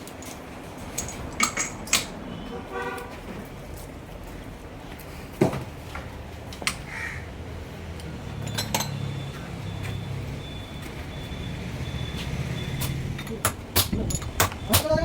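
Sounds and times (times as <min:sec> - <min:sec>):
metallic clinks of steel parts: 0:00.0 - 0:02.2, 0:08.4 - 0:09.3, 0:12.8 - 0:14.9.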